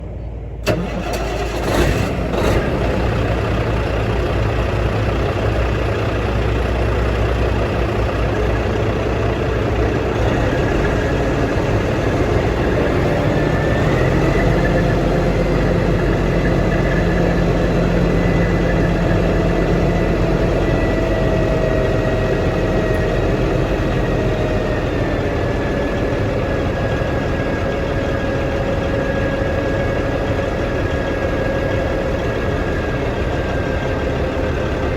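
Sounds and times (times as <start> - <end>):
dump truck engine running: 0.0 - 34.9.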